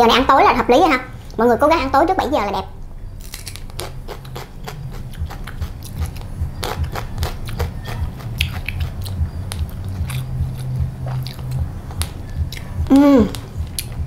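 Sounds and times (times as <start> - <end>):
person chewing crunchy food: 3.1 - 14.0.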